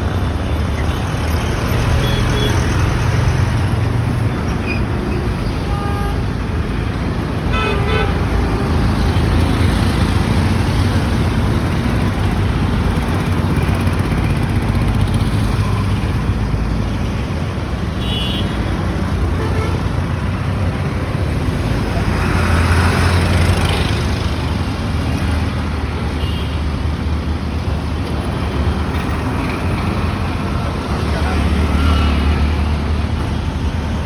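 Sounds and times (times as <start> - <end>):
engine and road noise: 0.0 - 34.0
car horn toots: 7.5 - 9.0.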